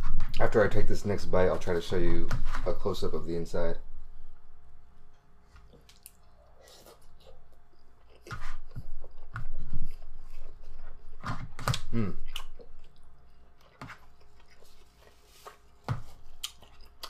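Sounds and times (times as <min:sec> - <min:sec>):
chewing and mouth noises: 0:05.7 - 0:11.1, 0:11.7 - 0:17.0.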